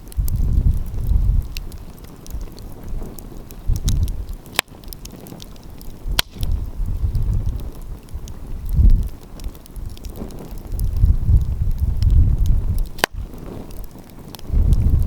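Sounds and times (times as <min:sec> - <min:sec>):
wind rumbling on microphone: 0:00.0 - 0:15.0
wood fire crackling: 0:00.0 - 0:15.0
sharp loud fire pops: 0:03.0 - 0:07.8, 0:09.9 - 0:15.0.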